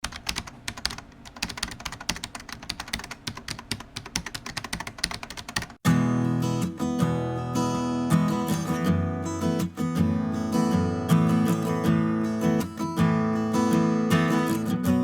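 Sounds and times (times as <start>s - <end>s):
keyboard typing: 0.0s - 5.8s
strummed acoustic guitar music: 5.8s - 15.0s.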